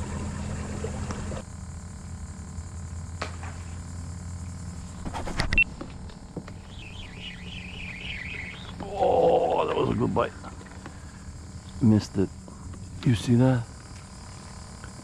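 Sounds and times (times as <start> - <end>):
low motor hum: 0.0 - 15.0
high wavering whistle: 6.7 - 8.8.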